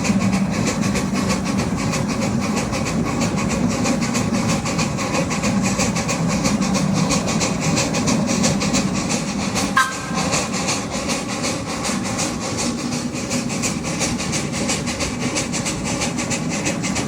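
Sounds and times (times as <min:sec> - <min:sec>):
train wheels clattering on rails: 0:00.0 - 0:17.0
train whistle toot: 0:09.8 - 0:10.2.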